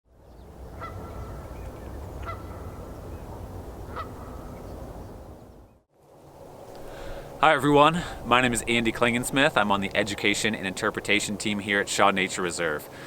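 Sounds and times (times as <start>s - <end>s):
steady low rumble: 0.4s - 12.7s
bird calling: 0.7s - 3.2s, 3.9s - 5.7s.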